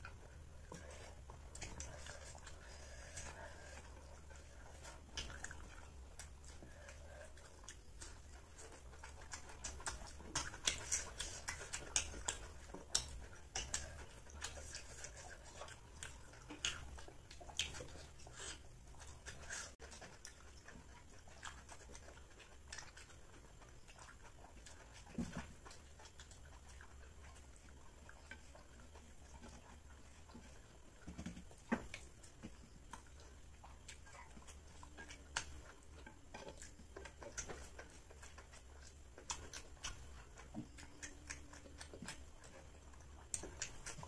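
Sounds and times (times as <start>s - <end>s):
low steady hum: 0.0s - 44.0s
people chewing and lip smacking: 0.0s - 44.0s.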